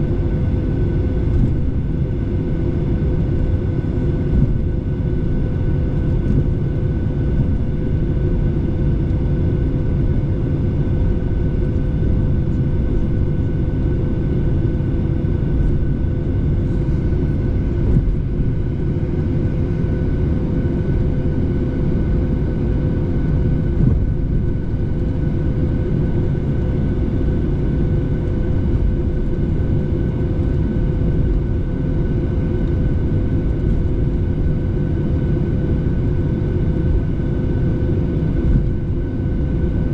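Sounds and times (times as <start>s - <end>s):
airliner engine and airflow rush: 0.0s - 39.9s
constant cabin hum: 0.0s - 39.9s.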